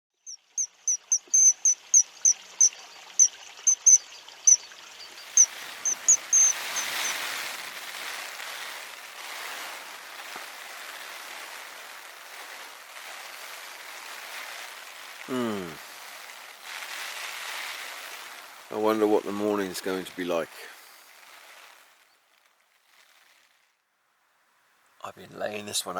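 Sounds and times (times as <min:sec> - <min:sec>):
small bird chirping: 0:00.1 - 0:07.3
rain hiss: 0:00.2 - 0:25.9.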